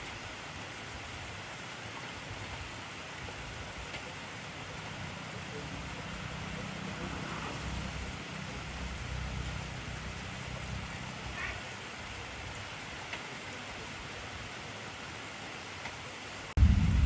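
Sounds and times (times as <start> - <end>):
heavy rain falling: 0.0 - 17.0
raindrop ticks: 13.0 - 13.3
low rumble: 16.6 - 17.0.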